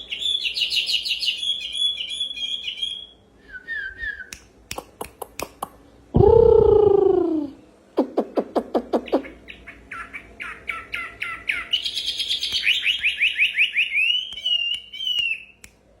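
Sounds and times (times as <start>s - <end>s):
songbird singing: 0.0s - 4.4s, 8.7s - 15.7s.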